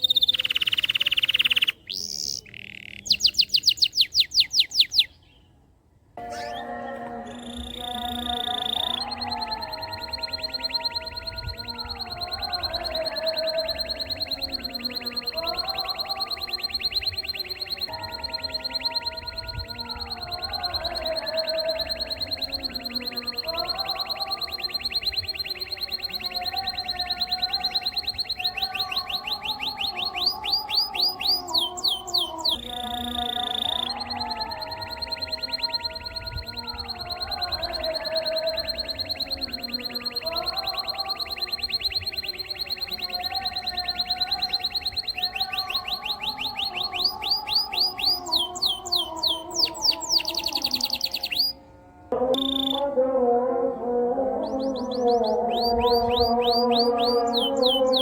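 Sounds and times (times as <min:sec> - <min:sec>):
canary singing trills and whistles: 0:00.0 - 0:05.5, 0:06.2 - 0:51.6, 0:52.3 - 0:53.0, 0:54.3 - 0:58.0
low wavering warble: 0:06.2 - 0:08.2.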